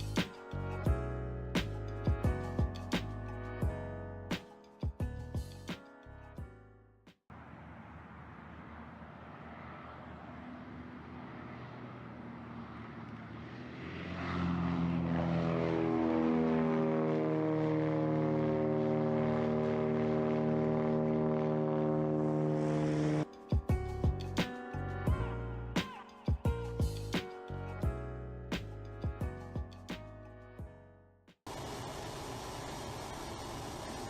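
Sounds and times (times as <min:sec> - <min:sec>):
propeller aircraft engine drone: 0:07.3 - 0:23.4, 0:31.5 - 0:34.0.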